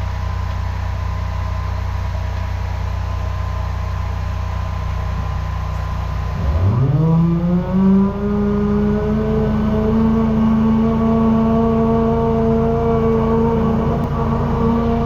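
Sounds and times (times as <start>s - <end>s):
drain jetter engine revving: 5.1s - 15.0s.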